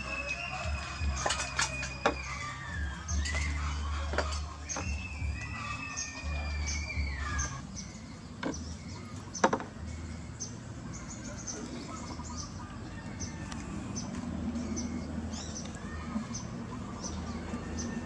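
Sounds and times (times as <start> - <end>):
long wavering bird call: 0.0 - 10.6
small birds chirping: 0.0 - 18.0.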